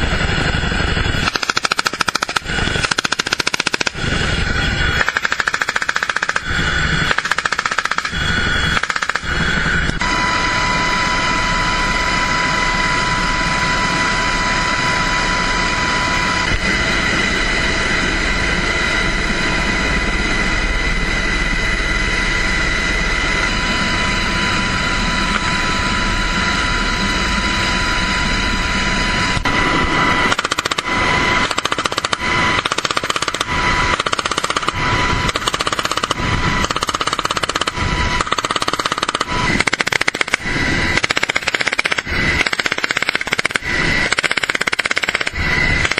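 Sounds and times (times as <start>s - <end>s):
dense continuous rattle: 0.0s - 10.1s, 30.2s - 45.9s
high whine: 0.0s - 45.9s
automatic gunfire bursts: 1.2s - 4.0s, 5.0s - 6.4s, 7.1s - 8.2s, 31.4s - 40.4s, 41.0s - 45.9s.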